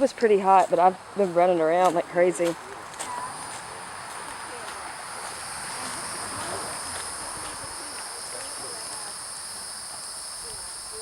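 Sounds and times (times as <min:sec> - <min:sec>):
faint distant voices: 0:00.0 - 0:11.0
insects shrilling: 0:04.8 - 0:11.0.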